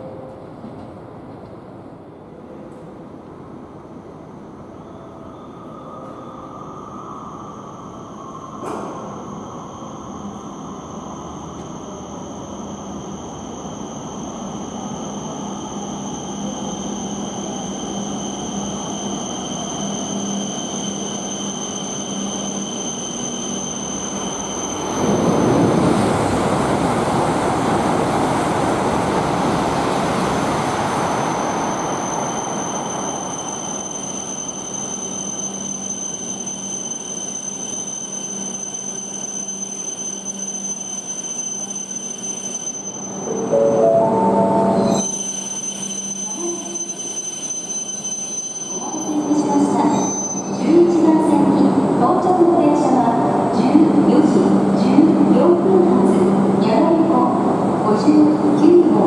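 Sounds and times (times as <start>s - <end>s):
train rumbling to a stop: 0.0s - 59.0s.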